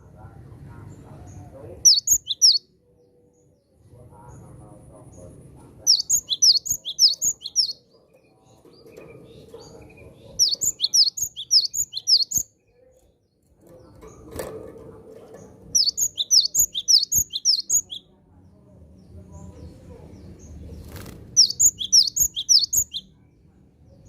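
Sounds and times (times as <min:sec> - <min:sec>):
bird singing high whistled notes: 0:01.9 - 0:02.6, 0:05.9 - 0:07.8, 0:10.4 - 0:12.4, 0:15.8 - 0:18.0, 0:21.4 - 0:23.0.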